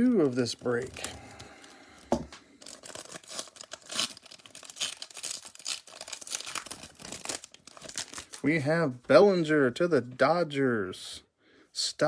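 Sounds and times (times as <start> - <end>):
card pack wrapper tearing: 0.0 - 8.4.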